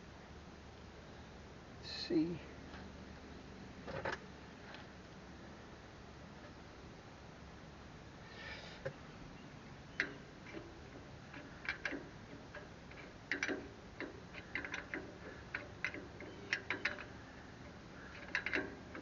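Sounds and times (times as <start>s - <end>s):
hand tools clicking and tapping: 10.0s - 19.0s.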